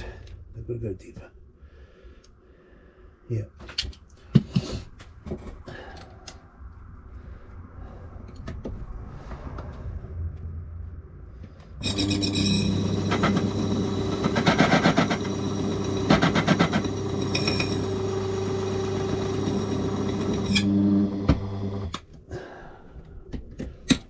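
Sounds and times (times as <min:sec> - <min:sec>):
key-cutting machine humming: 0:11.8 - 0:21.9
cutter grinding key blank: 0:11.8 - 0:22.0
motor winding down: 0:11.8 - 0:22.0.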